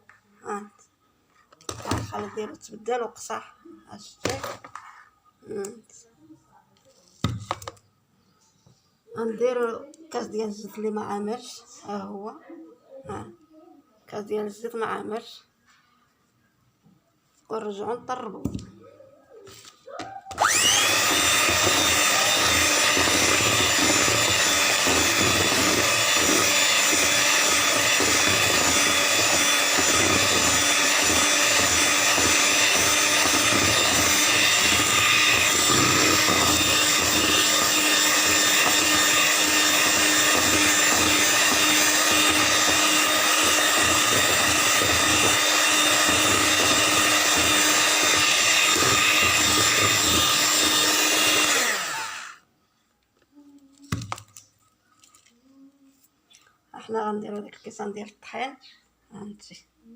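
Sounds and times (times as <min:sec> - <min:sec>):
electric mixer whining: 0:20.3 - 0:52.4
beaters whisking batter: 0:20.4 - 0:52.0.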